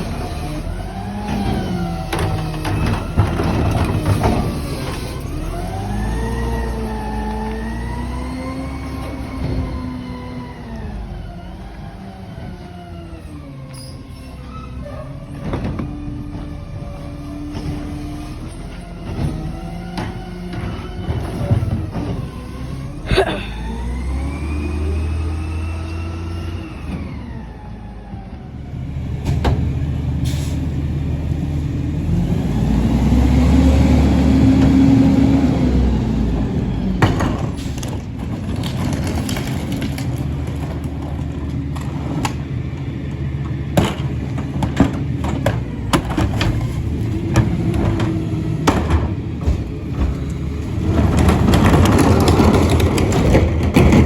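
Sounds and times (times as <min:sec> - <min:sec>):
garbage truck engine whine: 0:00.0 - 0:54.0
knocks and bangs: 0:43.8 - 0:54.0.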